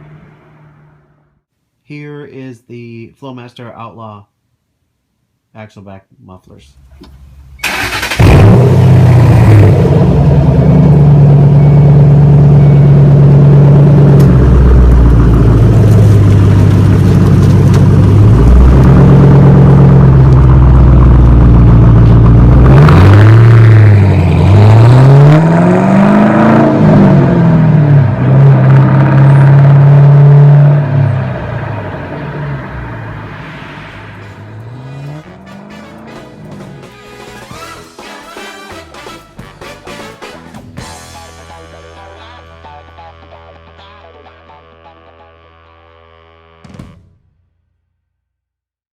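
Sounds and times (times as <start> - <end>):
car engine revving: 7.6 - 38.0
car engine idling loudly: 8.8 - 22.6.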